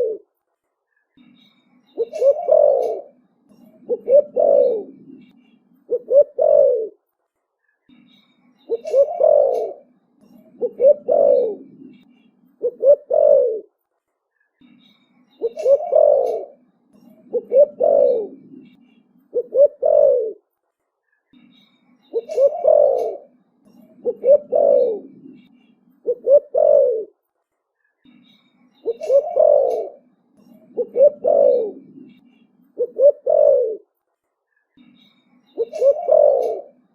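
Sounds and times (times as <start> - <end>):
dove cooing: 0.0 - 0.2, 2.0 - 7.0, 8.7 - 13.7, 15.4 - 20.4, 22.1 - 27.2, 28.8 - 32.2, 32.8 - 33.9, 35.6 - 36.9.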